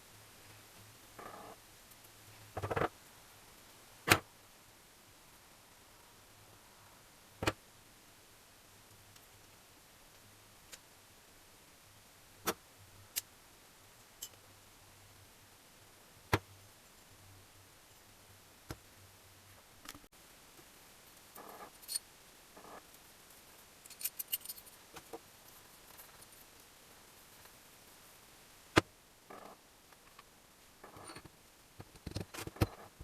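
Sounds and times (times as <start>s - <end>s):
small metal parts clinking: 21.4s - 22.0s, 23.8s - 24.8s
metallic clicks of tools: 23.8s - 24.7s.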